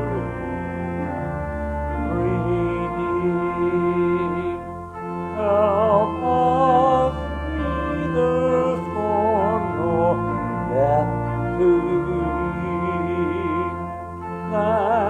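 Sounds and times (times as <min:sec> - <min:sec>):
church organ playing a hymn: 0:00.0 - 0:15.0
voices singing: 0:01.9 - 0:04.6, 0:05.3 - 0:13.8.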